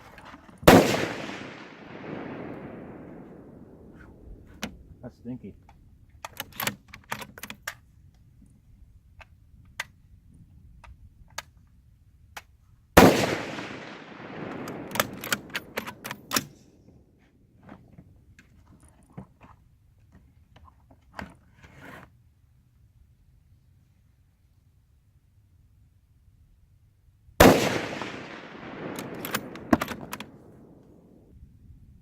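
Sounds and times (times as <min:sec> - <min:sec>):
loud gunshot with echo: 0:00.7 - 0:03.2, 0:13.0 - 0:14.9, 0:27.4 - 0:30.1
sharp clicks and knocks: 0:05.6 - 0:07.8, 0:14.5 - 0:16.6, 0:28.9 - 0:30.9.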